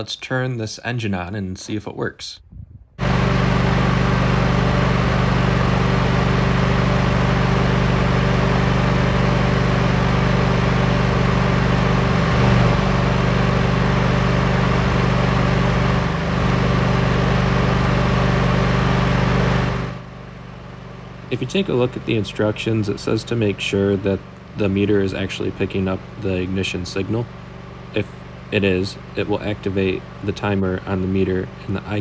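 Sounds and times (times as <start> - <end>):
sawmill engine running: 3.0 - 32.0.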